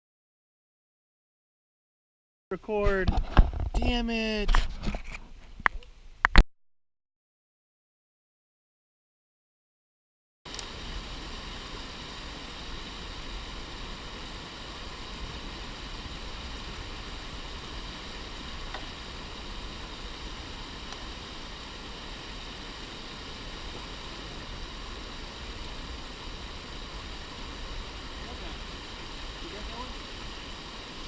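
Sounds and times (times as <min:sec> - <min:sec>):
steady hissing noise: 0:10.5 - 0:31.0.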